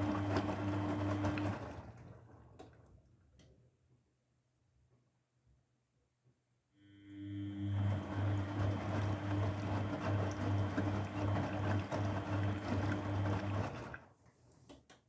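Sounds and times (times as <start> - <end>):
washing machine humming: 0.0 - 3.0, 6.8 - 14.2.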